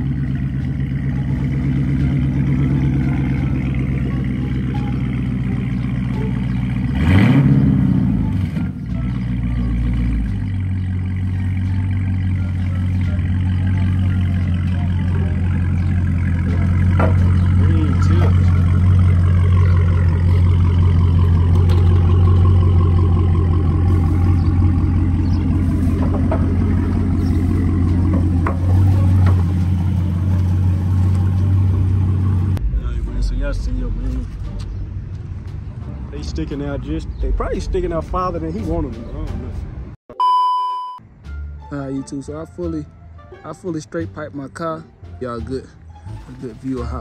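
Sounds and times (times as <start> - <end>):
car engine running: 0.0 - 35.6.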